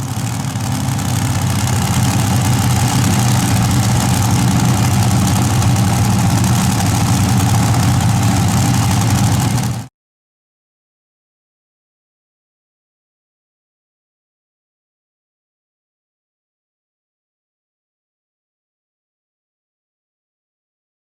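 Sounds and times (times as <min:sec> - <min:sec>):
tractor engine running loud: 0:00.0 - 0:09.9.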